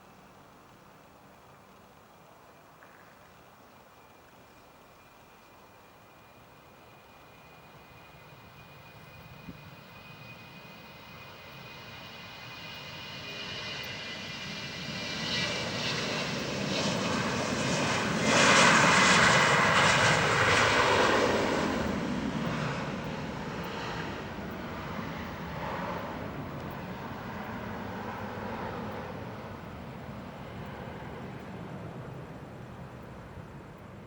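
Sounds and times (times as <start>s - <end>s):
jet engines passing: 7.3s - 34.0s.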